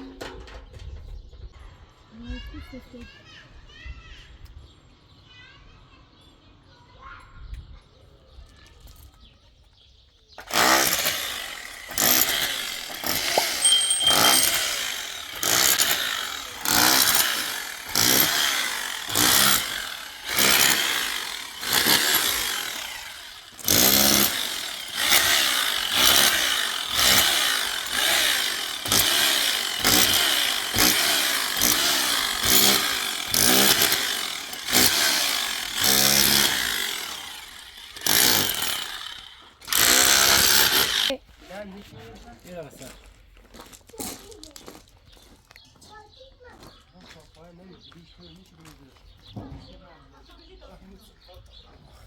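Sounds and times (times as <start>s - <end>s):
rhythmic saw strokes: 10.4s - 41.2s.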